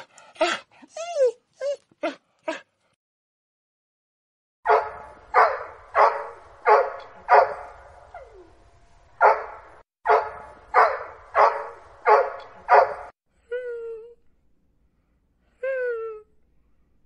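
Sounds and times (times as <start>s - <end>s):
dog whining: 0.8s - 2.6s
dog barking: 4.7s - 7.8s, 9.2s - 13.1s.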